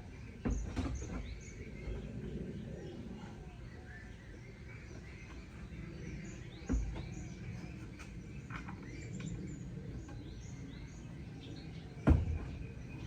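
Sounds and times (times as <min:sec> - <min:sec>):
birds chirping: 0:00.0 - 0:13.0
thump: 0:12.0 - 0:12.6.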